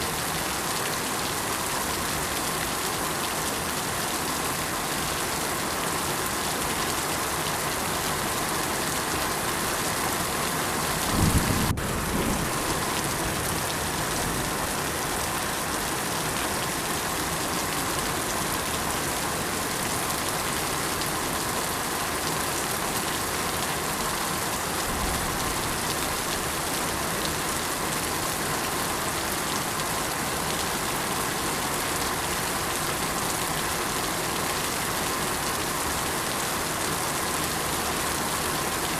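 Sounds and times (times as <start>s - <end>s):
rain falling: 0.0s - 38.9s
low thunder rumble: 11.0s - 13.4s.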